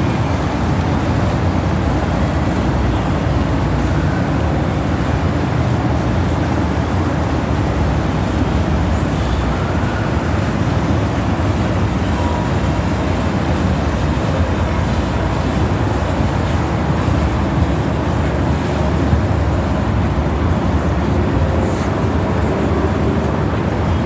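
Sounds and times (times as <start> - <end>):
boat engines rumbling: 0.0 - 24.0
wind buffeting microphone: 4.1 - 24.0.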